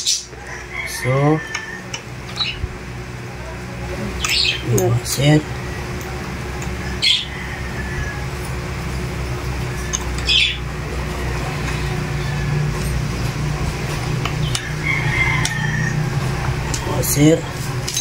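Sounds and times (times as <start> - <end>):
low steady hum: 0.0 - 18.0
bird chirp: 2.3 - 2.7, 4.1 - 4.8, 6.8 - 7.4, 9.7 - 10.7
bird squawk: 6.8 - 8.2, 9.8 - 10.7.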